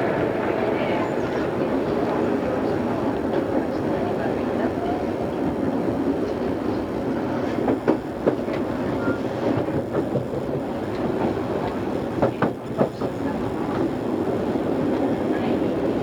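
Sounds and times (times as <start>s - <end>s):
train wheels rumbling on rail: 0.0s - 16.0s
clacks over rail joints: 6.0s - 14.0s.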